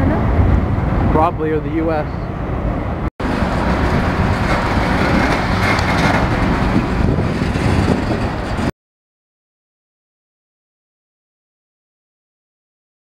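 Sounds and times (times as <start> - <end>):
freight train wheels rumbling: 0.0 - 8.7.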